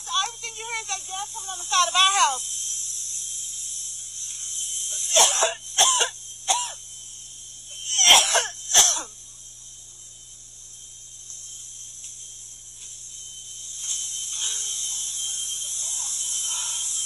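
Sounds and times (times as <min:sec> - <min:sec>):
gas hissing from a leak: 0:00.0 - 0:17.0
person coughing or sobbing: 0:05.1 - 0:06.8, 0:07.9 - 0:09.1.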